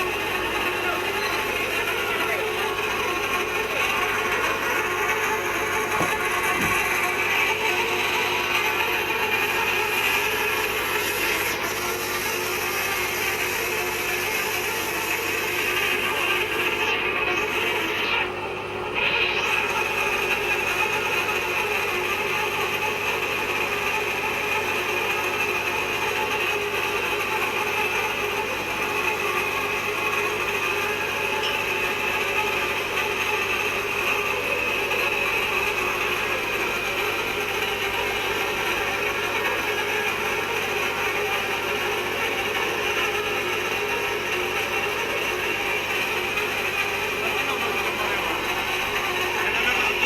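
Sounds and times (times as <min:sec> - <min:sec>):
machine cutting into steel pipe: 0:01.5 - 0:18.3.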